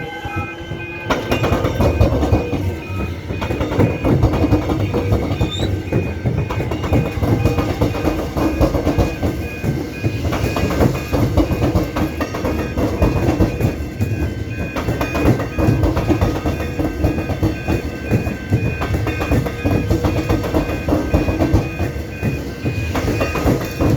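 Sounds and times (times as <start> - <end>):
train wheels clattering on tracks: 0.0 - 23.9
high pulsing tone: 1.9 - 8.6.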